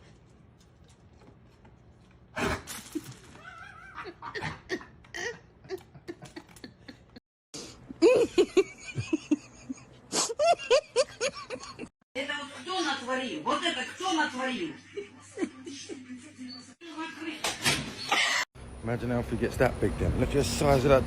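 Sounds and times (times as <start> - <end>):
laughter in quick bursts: 7.9 - 11.9.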